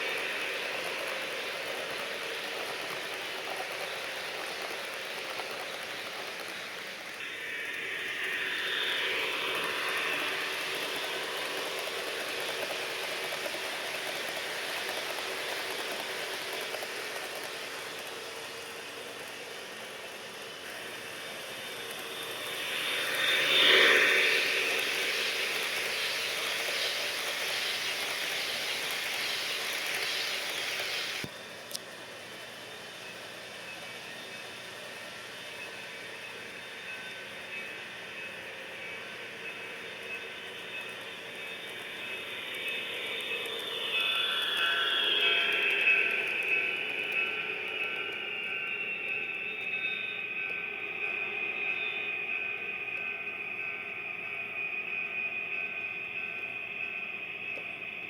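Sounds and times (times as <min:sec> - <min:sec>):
locomotive sound effects: 0:00.0 - 0:58.0
model train running on track: 0:00.0 - 0:58.0.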